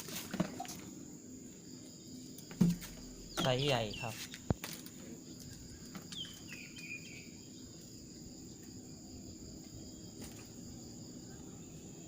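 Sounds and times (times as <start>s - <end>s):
insects droning: 0.0s - 12.0s
low outdoor hum: 0.0s - 12.0s.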